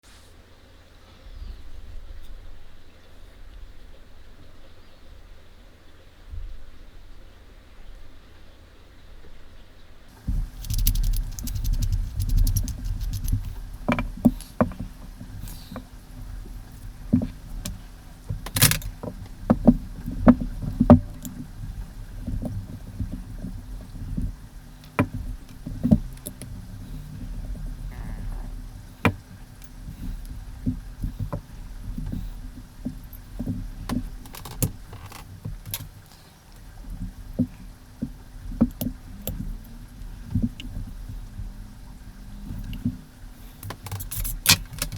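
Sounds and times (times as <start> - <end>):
low handling rumble: 10.1 - 44.9
clicks and taps of parts: 10.2 - 40.8, 43.6 - 44.9.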